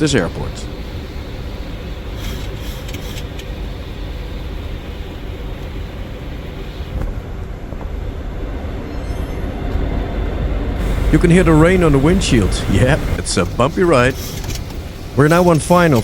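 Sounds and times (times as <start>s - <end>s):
airflow and engine rumble: 0.0s - 16.0s
rain hitting windshield: 10.8s - 16.0s.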